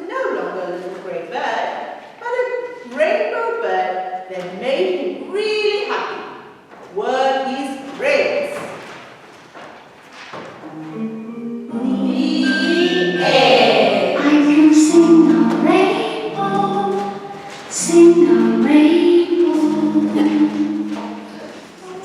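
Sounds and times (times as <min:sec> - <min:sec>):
musical accompaniment: 0:10.6 - 0:22.0
children singing together: 0:10.7 - 0:22.0.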